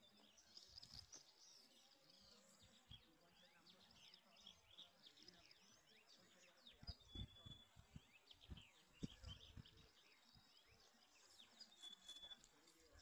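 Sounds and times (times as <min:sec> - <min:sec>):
faint birdsong chirps and whistles: 0:00.0 - 0:13.0
soft low thuds: 0:06.8 - 0:09.9.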